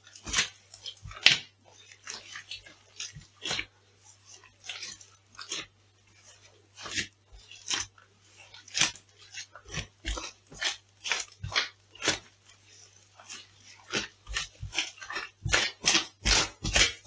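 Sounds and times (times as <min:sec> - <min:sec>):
crunchy food crushed underfoot: 0:13.9 - 0:17.0.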